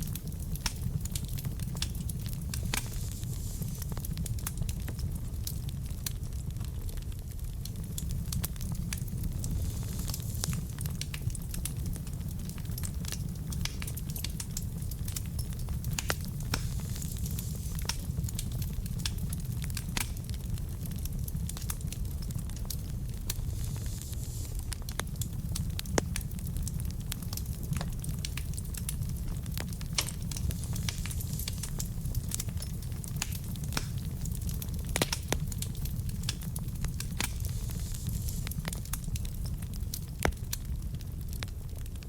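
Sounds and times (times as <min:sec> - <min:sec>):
crackles and pops of burning logs: 0:00.0 - 0:42.0
low rumble of flames: 0:00.0 - 0:42.0.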